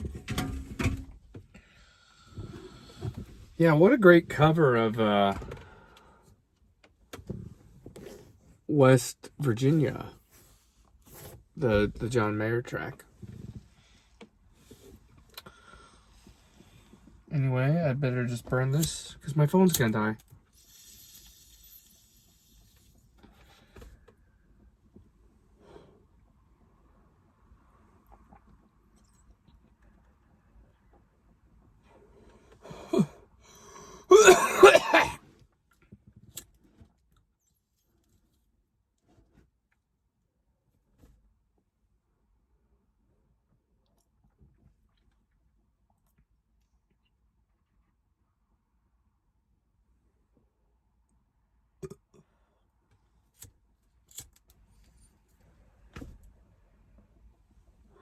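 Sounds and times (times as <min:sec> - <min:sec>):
man clearing throat: 0:32.7 - 0:33.2, 0:34.1 - 0:35.2
man coughing: 0:32.7 - 0:33.2, 0:34.1 - 0:35.2.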